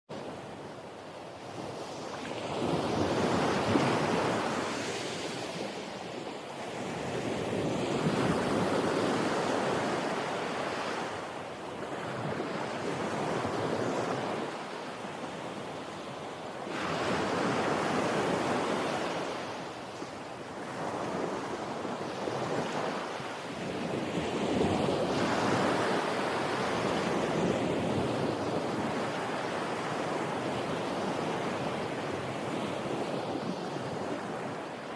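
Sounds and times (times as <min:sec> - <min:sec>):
sea waves breaking on shore: 0:00.2 - 0:34.9.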